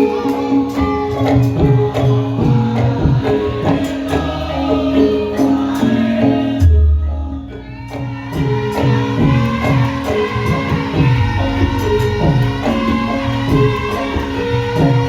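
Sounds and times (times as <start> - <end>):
gamelan music: 0.0 - 15.0.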